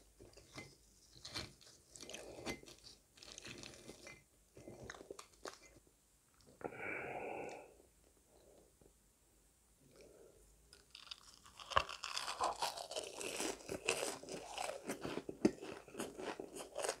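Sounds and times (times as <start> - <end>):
chewing and crunching fried food: 0.0 - 5.8, 10.7 - 17.0.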